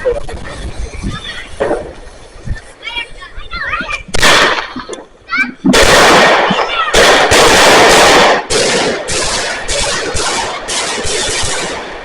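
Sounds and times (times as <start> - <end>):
firework crackling reports: 0.0 - 12.0
firework shots: 4.0 - 12.0
firework bang: 5.7 - 12.0.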